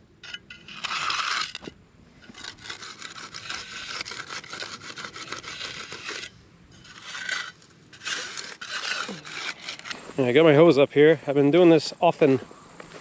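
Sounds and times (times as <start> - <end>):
concrete edger scraping: 0.2 - 10.0.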